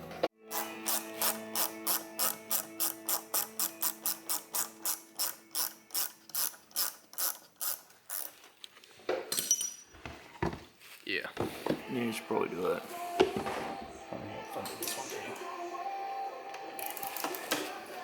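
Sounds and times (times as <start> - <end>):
ratchet wrench clicking: 0.5 - 8.4.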